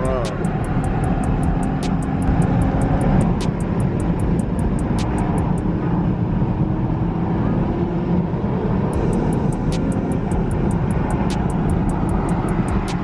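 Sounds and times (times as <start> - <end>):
faint rapid ticking: 0.0 - 5.6, 8.9 - 13.0
car driving on highway: 0.0 - 13.0.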